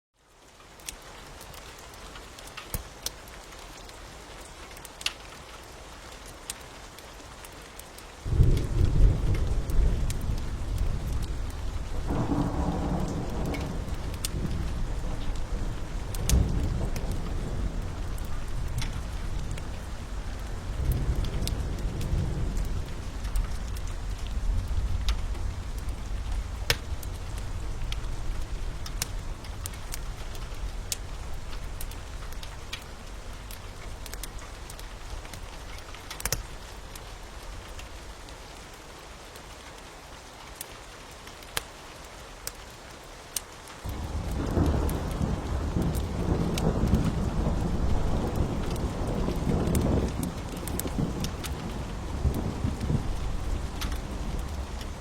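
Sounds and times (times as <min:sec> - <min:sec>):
steady rain: 0:00.2 - 0:55.0
wood fire crackling: 0:00.3 - 0:55.0
low rumble of thunder: 0:08.2 - 0:38.3, 0:43.9 - 0:55.0.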